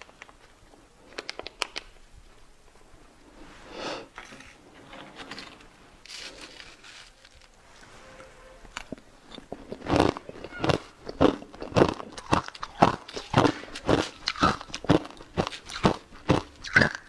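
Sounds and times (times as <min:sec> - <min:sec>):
crunchy chewing: 0:00.0 - 0:02.0, 0:08.7 - 0:17.0
sharp clicks: 0:01.1 - 0:02.0.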